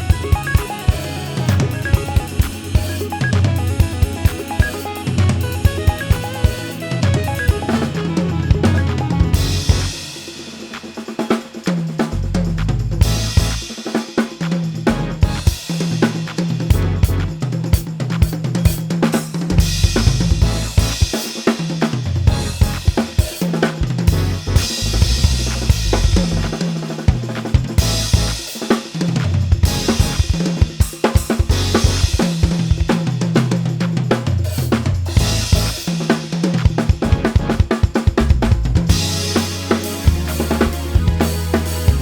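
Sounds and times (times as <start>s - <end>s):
low bass notes: 0.0s - 10.1s, 12.2s - 13.7s, 14.9s - 15.5s, 16.7s - 17.4s, 19.6s - 21.0s, 22.3s - 22.9s, 23.8s - 26.6s, 27.8s - 28.4s, 29.6s - 30.2s, 31.5s - 32.2s, 35.1s - 35.8s, 37.0s - 37.6s, 38.2s - 42.0s
drum kit played fast: 0.0s - 42.0s.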